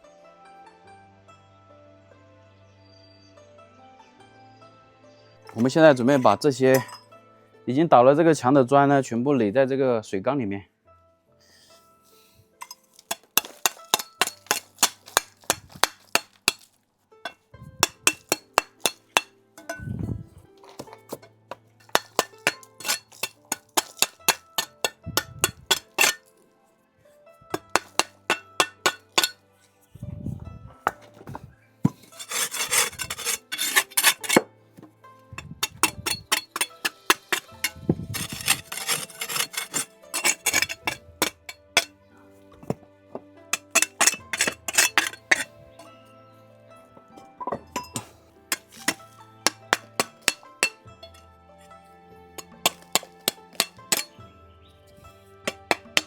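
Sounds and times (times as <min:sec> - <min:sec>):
background music: 0:00.0 - 0:56.0
bricks clinking together: 0:05.5 - 0:07.1, 0:12.6 - 0:19.9, 0:20.6 - 0:26.4, 0:27.5 - 0:29.4, 0:30.8 - 0:41.9, 0:42.6 - 0:45.9, 0:47.0 - 0:51.8, 0:52.4 - 0:54.2, 0:55.4 - 0:56.0.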